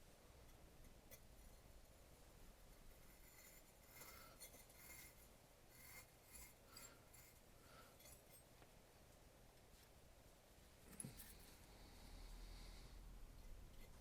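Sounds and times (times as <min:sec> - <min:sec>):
faint scratches and clinks: 0:00.4 - 0:08.6, 0:10.8 - 0:11.7.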